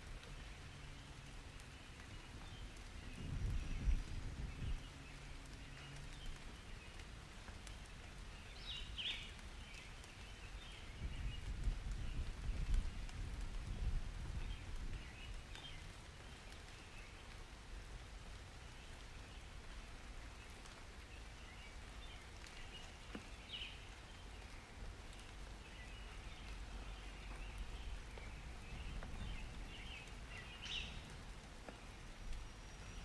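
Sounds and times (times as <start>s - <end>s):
rain pattering: 0.0s - 33.0s
birds chirping: 25.6s - 33.0s.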